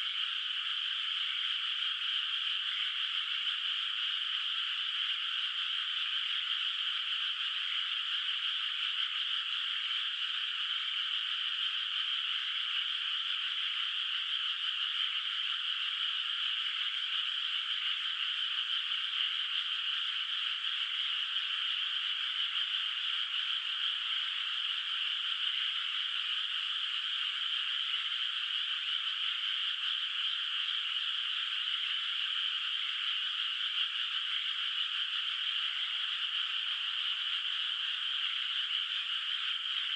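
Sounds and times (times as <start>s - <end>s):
chorus of frogs calling: 0.0s - 39.9s.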